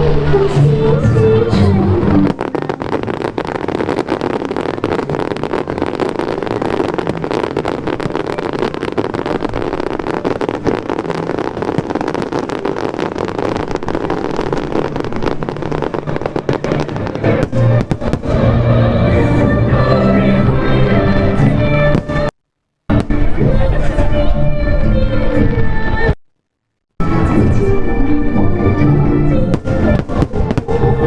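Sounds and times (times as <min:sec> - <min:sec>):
fireworks crackling bangs: 0:00.0 - 0:20.0, 0:21.8 - 0:24.0, 0:29.5 - 0:31.0
loud music: 0:15.6 - 0:22.3.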